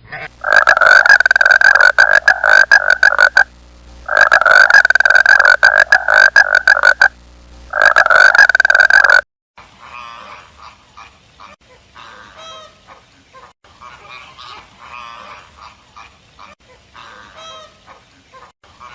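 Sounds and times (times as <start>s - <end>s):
waterfowl honking: 0.4s - 3.4s, 4.1s - 7.1s, 13.8s - 17.8s.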